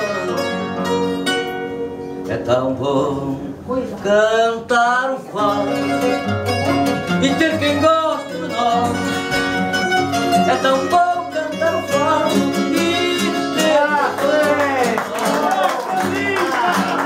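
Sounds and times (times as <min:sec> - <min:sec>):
plucked guitars playing: 0:00.0 - 0:04.4, 0:05.1 - 0:17.0.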